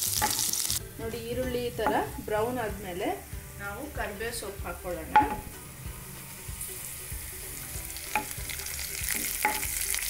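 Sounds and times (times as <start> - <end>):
onions sizzling in oil: 0.0 - 10.0
spatula tapping pan: 5.1 - 5.5, 9.1 - 9.8.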